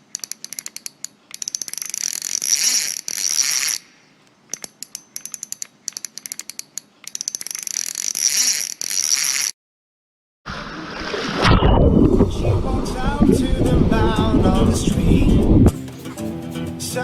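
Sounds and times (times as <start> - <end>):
fishing reel ratcheting clicks: 0.0 - 3.9, 4.5 - 9.5.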